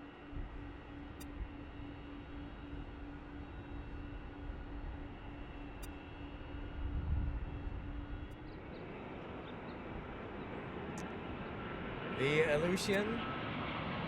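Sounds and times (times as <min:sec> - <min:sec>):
faint steady hum: 0:00.0 - 0:13.5
distant jet engine rumble: 0:00.0 - 0:14.0.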